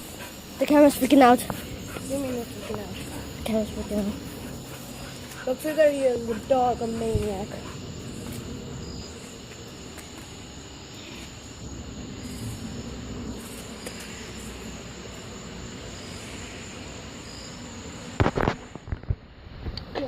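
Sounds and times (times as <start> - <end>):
low rumble: 11.5 - 17.1.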